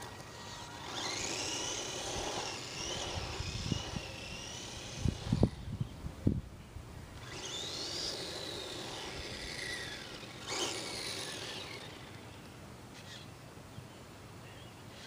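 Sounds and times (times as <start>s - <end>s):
toy truck motor whining: 0.0s - 5.8s, 7.2s - 13.3s.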